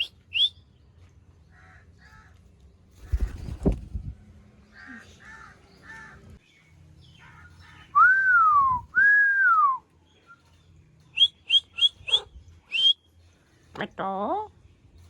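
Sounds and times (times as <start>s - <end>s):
rising and falling whistles: 0.0s - 0.5s, 8.0s - 9.8s, 11.2s - 13.0s.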